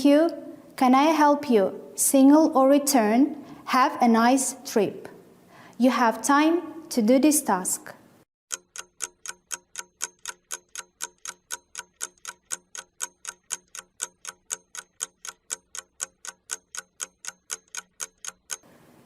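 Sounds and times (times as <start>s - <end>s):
clock ticking: 8.5s - 18.7s.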